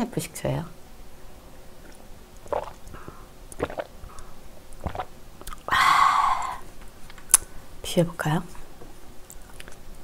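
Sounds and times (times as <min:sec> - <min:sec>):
person gulping a drink: 0:01.8 - 0:06.7.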